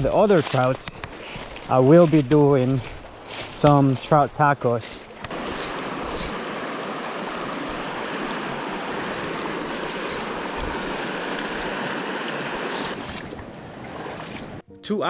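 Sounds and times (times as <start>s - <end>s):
water rushing over rocks: 5.2s - 13.2s.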